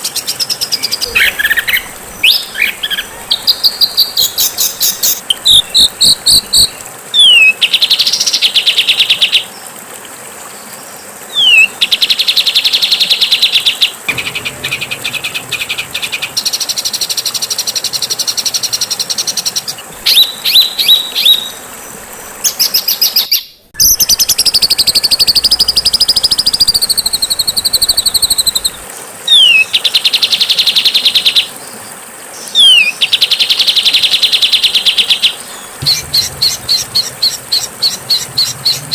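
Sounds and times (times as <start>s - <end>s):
songbird trills and whistles: 20.1s - 21.6s, 32.6s - 32.9s.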